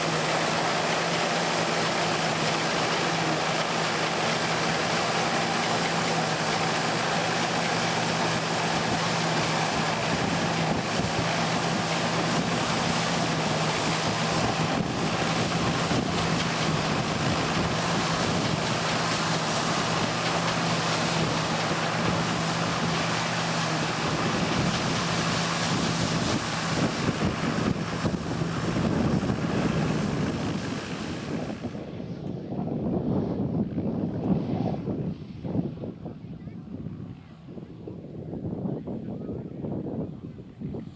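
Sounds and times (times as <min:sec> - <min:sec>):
farm machinery engine humming: 0:00.0 - 0:32.0
wind noise on microphone: 0:00.0 - 0:40.9.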